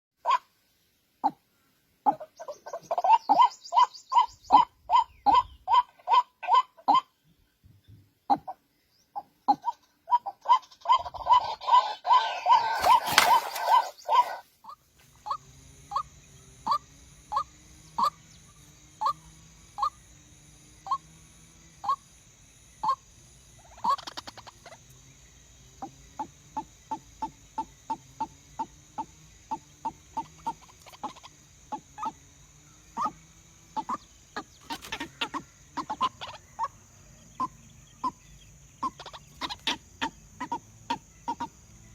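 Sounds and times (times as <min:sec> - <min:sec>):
bird short calls: 0:09.5 - 0:16.0, 0:37.4 - 0:41.5
steady high hiss: 0:12.0 - 0:41.9.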